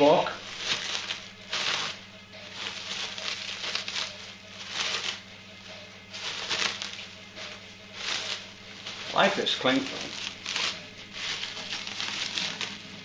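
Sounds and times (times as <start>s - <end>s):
plastic packaging crinkling: 0.0s - 5.3s, 6.1s - 13.0s.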